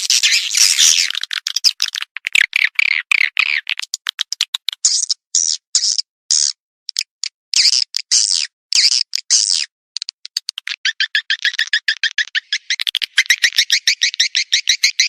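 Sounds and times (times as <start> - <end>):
recorded swiftlet calls: 0.0 - 6.6, 10.4 - 15.0.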